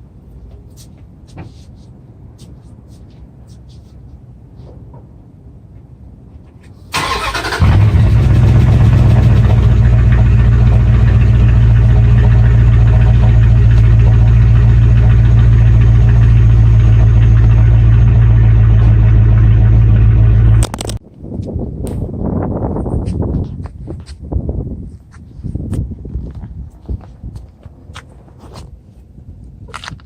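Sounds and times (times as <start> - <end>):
car engine idling: 6.9 - 21.0.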